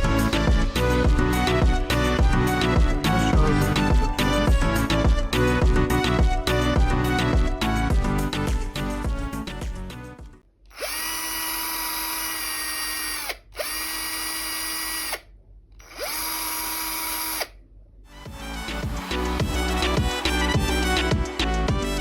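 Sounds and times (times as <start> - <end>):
background music: 0.0 - 10.4, 18.1 - 22.0
cordless drill motor whining: 10.7 - 15.2, 15.8 - 17.5.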